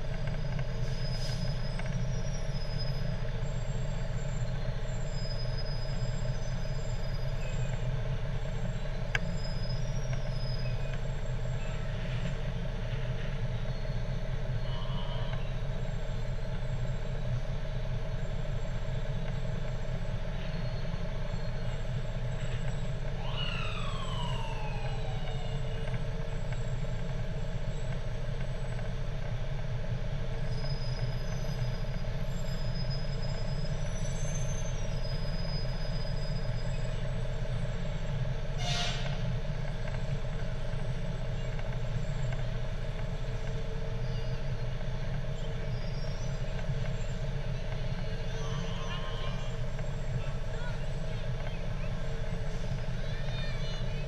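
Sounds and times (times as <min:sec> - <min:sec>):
fire truck engines humming: 0:00.0 - 0:54.0
siren tone sweeping downward: 0:23.2 - 0:25.8.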